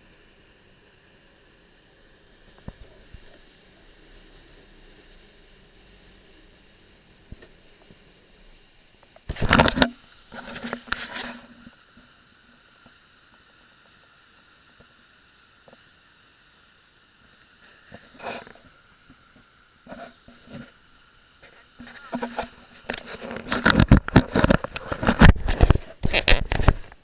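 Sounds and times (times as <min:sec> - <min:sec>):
faint steady hiss: 0:00.0 - 0:27.0
camera knocking against life vest: 0:23.5 - 0:27.0.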